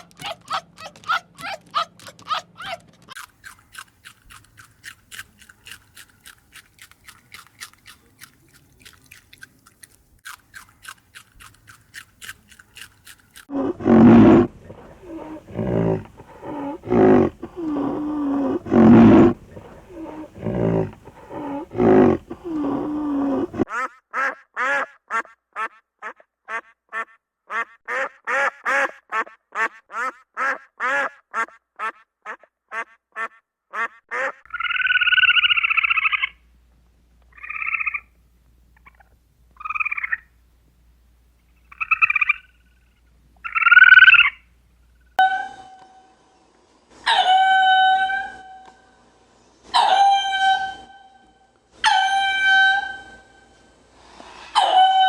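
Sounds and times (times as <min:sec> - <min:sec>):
fast high animal calls: 0:00.0 - 0:02.9, 0:13.3 - 0:23.7
loud low animal calls: 0:13.4 - 0:23.7.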